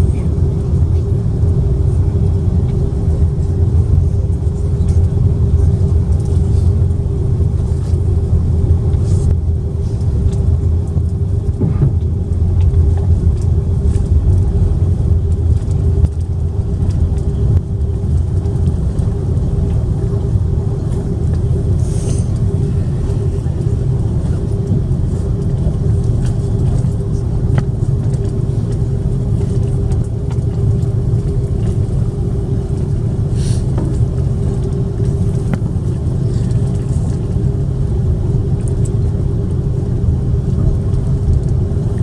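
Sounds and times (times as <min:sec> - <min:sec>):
aircraft cabin rumble: 0:00.0 - 0:42.0
constant hum: 0:00.0 - 0:42.0.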